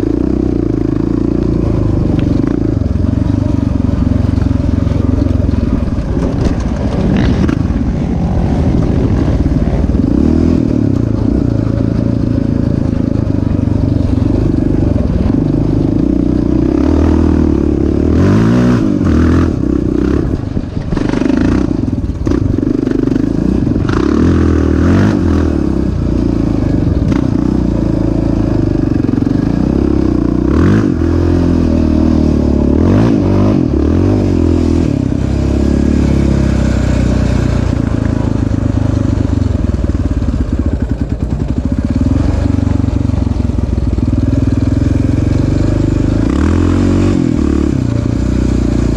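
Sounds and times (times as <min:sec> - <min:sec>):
off-road motorcycle engine revving: 0:00.0 - 0:48.9
clatter and knocks from ride: 0:06.0 - 0:07.6.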